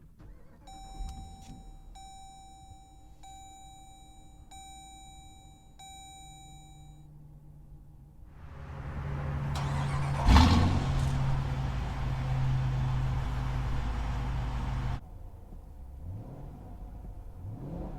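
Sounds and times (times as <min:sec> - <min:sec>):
low steady hum: 0:00.6 - 0:15.0
electronic warning chime: 0:00.7 - 0:07.0.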